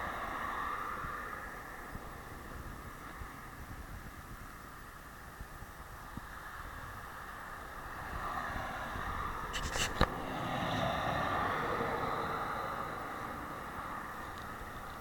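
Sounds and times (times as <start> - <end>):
car passing: 0.0 - 3.7, 6.2 - 15.0.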